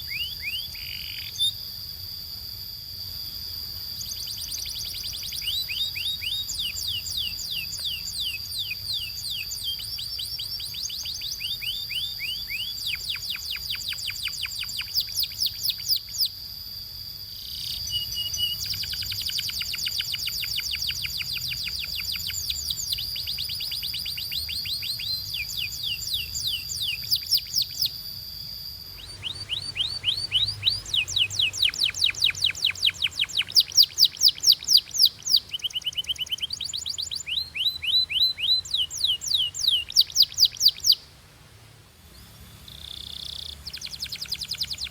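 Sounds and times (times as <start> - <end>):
canary singing trills: 0.0 - 2.5, 3.1 - 41.1, 42.1 - 44.9
steady high whistle-like tone: 0.0 - 41.2, 41.9 - 44.9.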